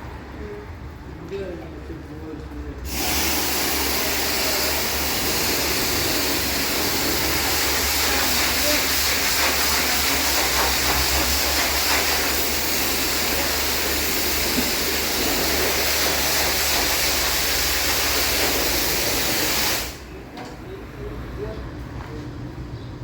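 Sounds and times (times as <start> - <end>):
spray gun hissing: 2.9 - 20.1.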